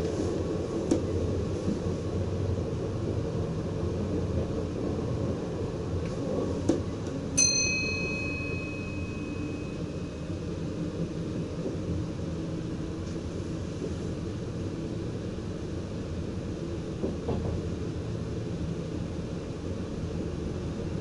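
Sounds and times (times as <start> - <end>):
train cab running rumble: 0.0 - 21.0
bell-like ping: 7.4 - 10.2.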